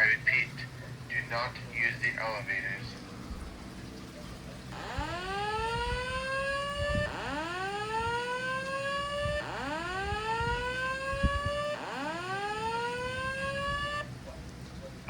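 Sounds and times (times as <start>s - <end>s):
fire alarm whoop tone: 4.8s - 14.1s.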